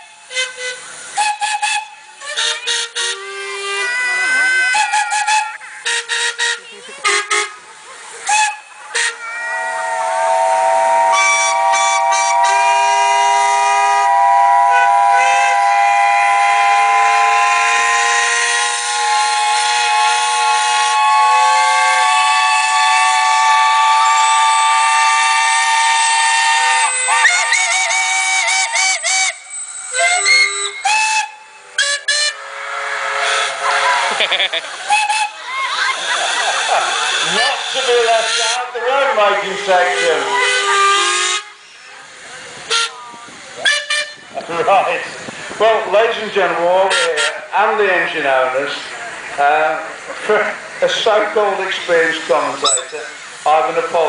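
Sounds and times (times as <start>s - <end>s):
steam whistles blowing in a chord: 0.0s - 6.5s, 8.3s - 34.2s, 34.8s - 38.6s, 42.7s - 43.0s, 43.6s - 44.2s, 52.6s - 53.3s
short steam whistle toots: 0.2s - 3.3s, 8.3s - 34.0s, 42.7s - 43.0s, 43.6s - 44.2s, 52.6s - 53.3s.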